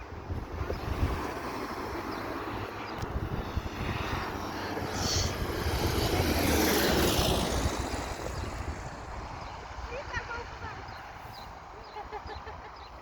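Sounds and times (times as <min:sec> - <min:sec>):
light plane engine drone: 0:00.0 - 0:13.0.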